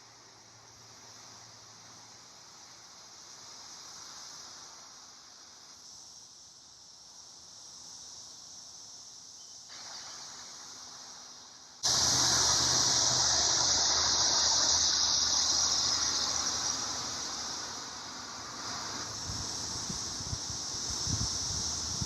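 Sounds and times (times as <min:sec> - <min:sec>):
cicadas singing in chorus: 0:00.0 - 0:10.2, 0:11.8 - 0:22.0
rushing noise: 0:11.8 - 0:20.6.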